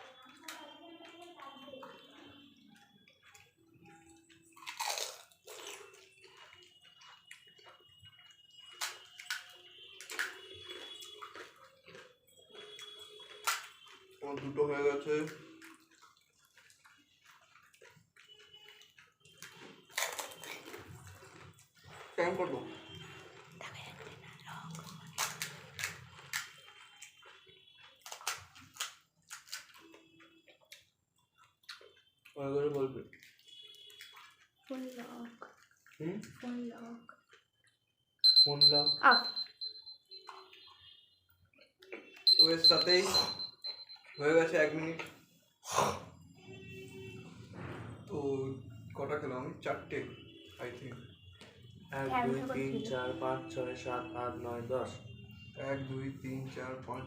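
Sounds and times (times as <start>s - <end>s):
crunching and slurping: 2.2s - 32.4s.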